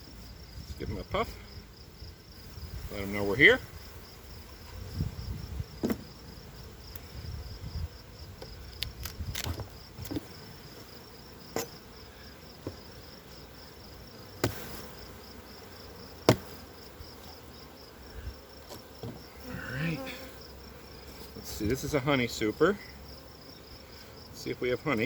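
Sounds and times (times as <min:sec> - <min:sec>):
bees buzzing: 0:09.7 - 0:24.8
knocks on wooden hive parts: 0:12.6 - 0:12.8, 0:14.4 - 0:14.9, 0:16.2 - 0:16.7.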